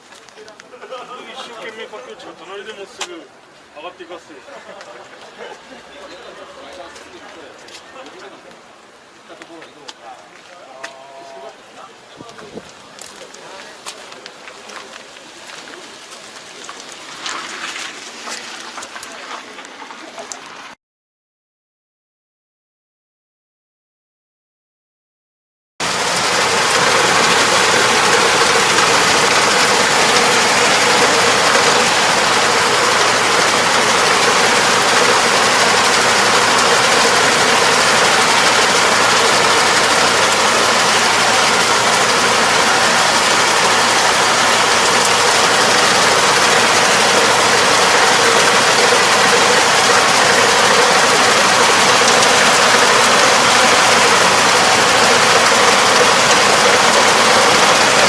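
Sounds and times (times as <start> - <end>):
farm machine engine running: 25.8 - 58.0.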